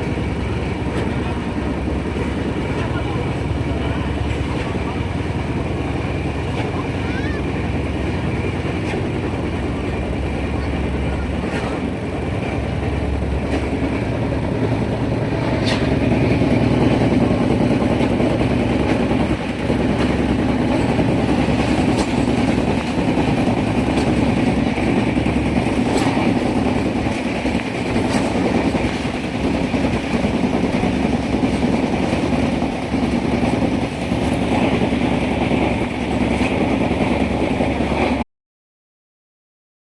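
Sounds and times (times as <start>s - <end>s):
train rumbling on track: 0.0s - 38.2s
sharp track clicks: 11.4s - 34.9s.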